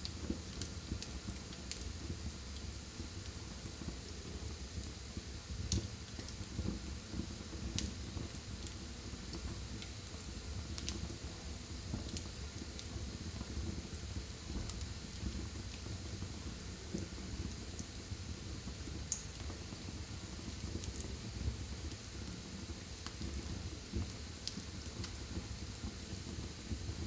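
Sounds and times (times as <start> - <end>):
fire flames rumbling: 0.0 - 27.0
wood crackling and popping: 23.0 - 26.2.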